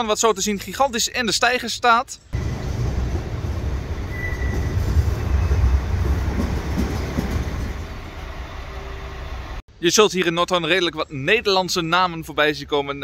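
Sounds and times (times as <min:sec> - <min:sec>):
diesel railcar rumble: 0:02.4 - 0:09.6
short high squeal: 0:04.1 - 0:05.5.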